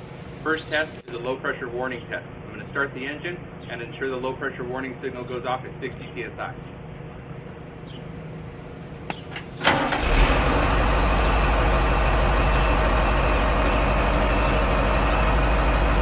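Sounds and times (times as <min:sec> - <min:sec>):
diesel engine starting and idling: 0:09.6 - 0:16.0.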